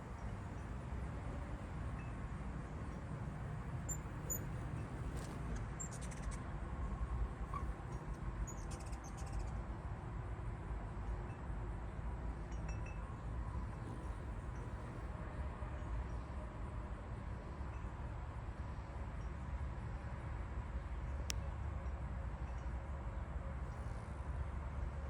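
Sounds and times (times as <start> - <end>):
hummingbird rapid chattering: 3.9 - 5.3.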